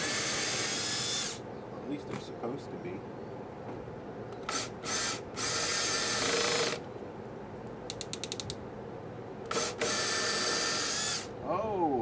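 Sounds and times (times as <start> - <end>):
power drill whirring: 0.0 - 1.4, 4.4 - 6.8, 9.5 - 11.3
sharp clicks: 7.9 - 8.6.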